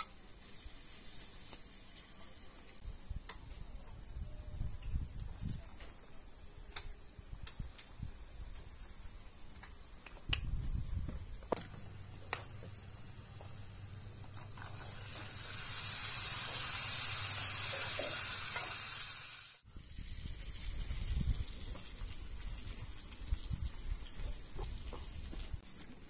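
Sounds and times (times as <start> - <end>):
food sizzling in a frying pan: 14.3 - 24.2.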